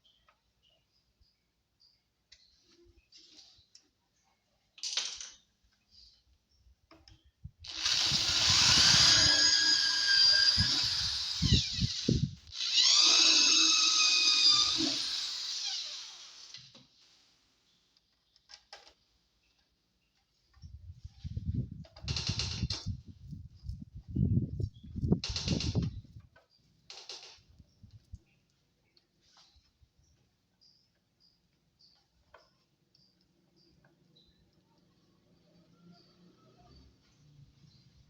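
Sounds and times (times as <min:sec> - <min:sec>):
electric drill boring holes: 0:07.6 - 0:16.8.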